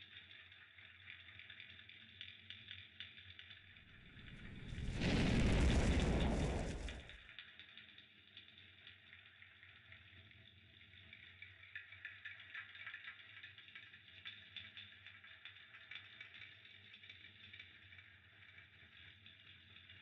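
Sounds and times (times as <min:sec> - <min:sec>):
fireplace fire crackling: 0:03.5 - 0:07.4
low hum: 0:03.9 - 0:07.1.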